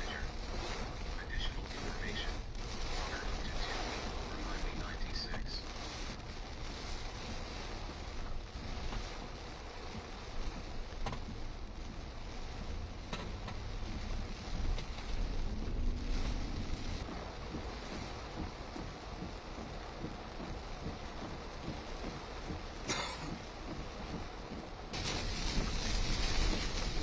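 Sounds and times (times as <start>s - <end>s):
heavy rain: 0.0s - 27.0s
wind buffeting microphone: 23.4s - 27.0s.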